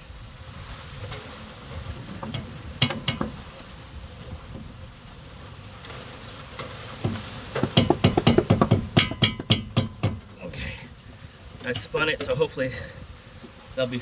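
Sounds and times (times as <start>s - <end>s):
hand tools clicking and knocking: 2.2s - 3.4s, 7.0s - 12.4s.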